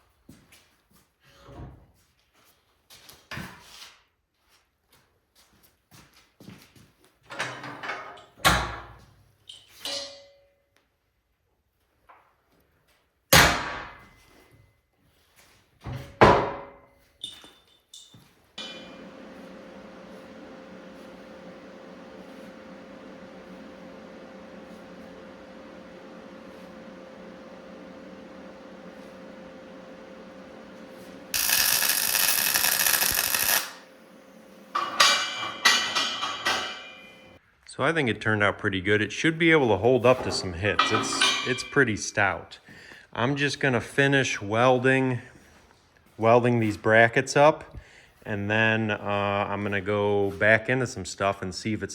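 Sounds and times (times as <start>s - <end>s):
steel parts clanking: 17.2s - 19.2s, 34.7s - 37.3s, 40.2s - 41.8s
heavy steel clanging: 18.6s - 20.0s, 34.7s - 37.3s
loud hiss: 31.3s - 33.8s.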